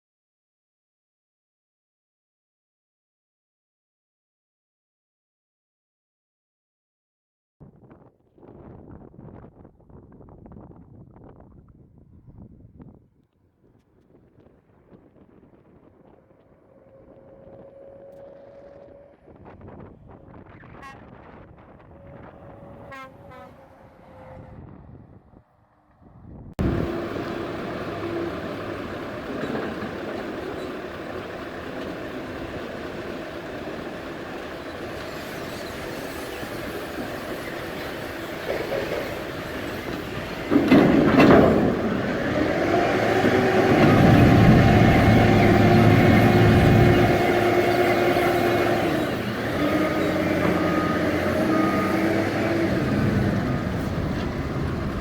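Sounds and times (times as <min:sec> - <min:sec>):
truck engine running: 0:26.6 - 0:35.1, 0:39.2 - 0:55.0.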